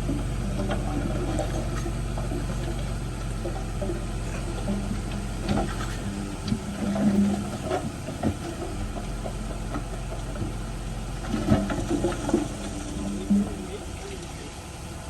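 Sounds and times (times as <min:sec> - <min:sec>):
diesel earthmoving machinery running: 0:00.0 - 0:15.0
clanks and knocks: 0:00.1 - 0:10.6.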